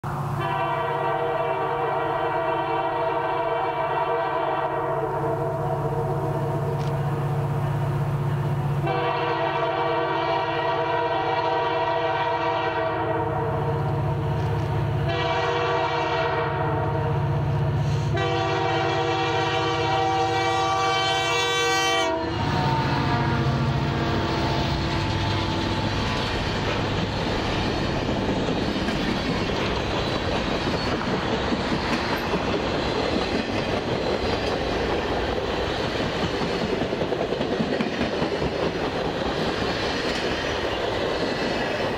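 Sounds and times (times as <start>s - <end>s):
locomotive engine rumbling: 0.0s - 41.9s
locomotive air horn blasts: 0.2s - 6.8s, 8.8s - 14.0s, 15.0s - 26.1s
train wheel clicks: 14.3s - 14.8s, 24.8s - 41.9s.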